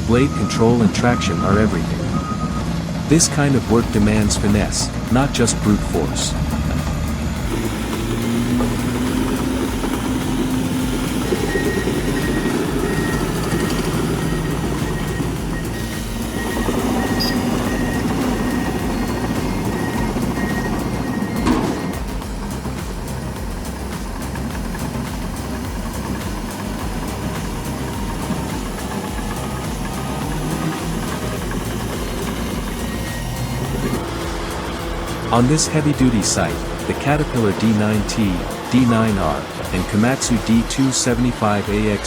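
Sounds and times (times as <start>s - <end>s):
bulldozer diesel engine: 0.0s - 42.0s
faint high whine: 7.3s - 42.0s.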